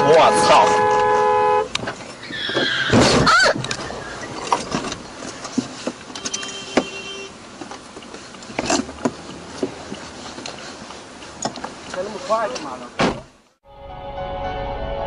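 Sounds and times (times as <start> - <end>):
car horn: 0.0 - 1.8, 6.1 - 7.4.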